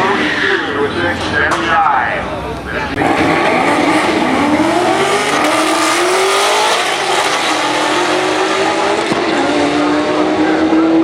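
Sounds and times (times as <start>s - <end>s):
drag racing car accelerating: 0.0s - 11.0s.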